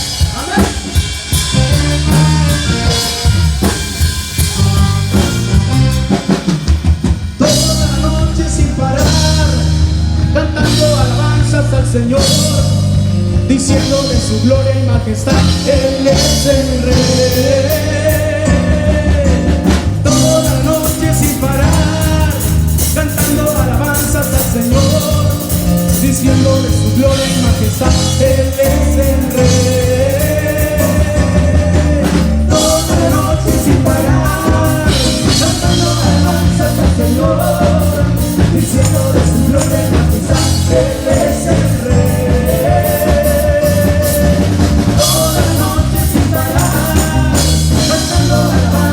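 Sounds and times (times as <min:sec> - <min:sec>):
person singing: 0:00.0 - 0:06.4, 0:07.4 - 0:48.9
drum kit beat: 0:00.0 - 0:48.9
guitar: 0:00.0 - 0:48.9
live rock band playing: 0:00.0 - 0:48.9.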